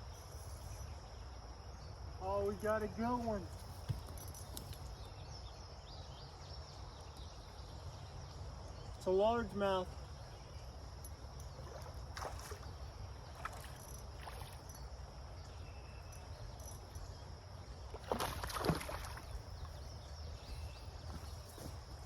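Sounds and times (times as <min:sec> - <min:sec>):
water splashing: 0:11.6 - 0:14.7, 0:17.9 - 0:19.5.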